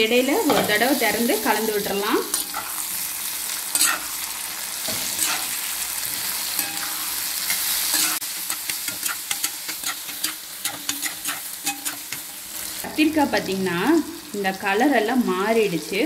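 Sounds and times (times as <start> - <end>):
vegetables sizzling in oil: 0.0 - 16.0
metal spatula scraping pan: 3.7 - 4.2, 4.8 - 5.6, 6.2 - 12.8.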